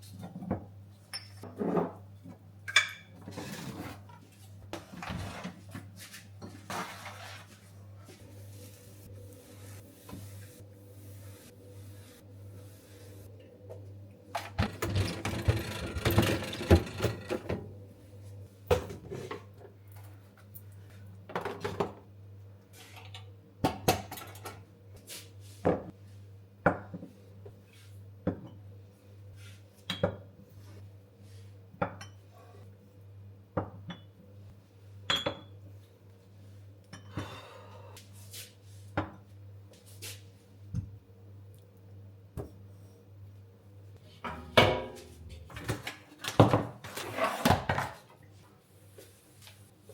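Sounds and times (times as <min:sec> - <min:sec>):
dishes and cutlery clinking: 0:02.7 - 0:03.4, 0:44.2 - 0:45.9.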